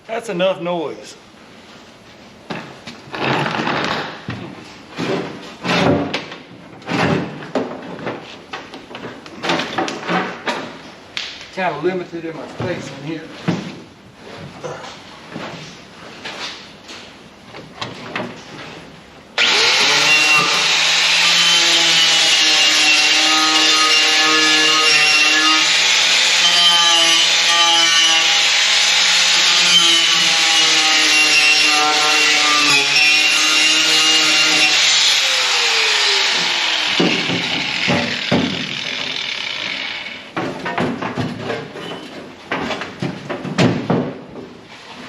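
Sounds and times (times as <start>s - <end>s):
power grinder on sheet metal: 19.4s - 40.2s.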